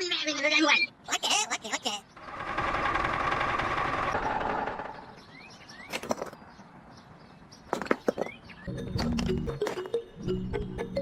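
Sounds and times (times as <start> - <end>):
music: 8.7 - 11.0.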